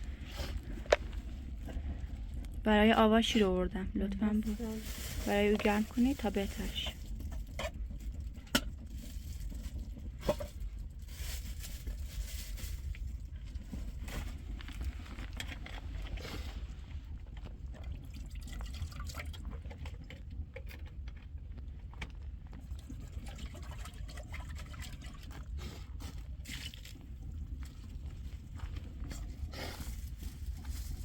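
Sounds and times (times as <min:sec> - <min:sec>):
steady low rumble: 0:00.0 - 0:18.2, 0:26.2 - 0:31.0
milk pouring: 0:17.4 - 0:20.1, 0:22.6 - 0:25.6, 0:26.2 - 0:28.1.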